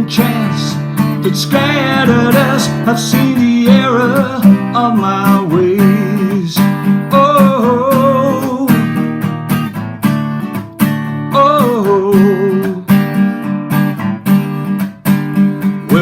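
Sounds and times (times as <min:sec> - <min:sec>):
person singing: 0:00.0 - 0:09.1, 0:11.3 - 0:13.0, 0:15.8 - 0:16.0
acoustic guitar strummed: 0:00.0 - 0:16.0.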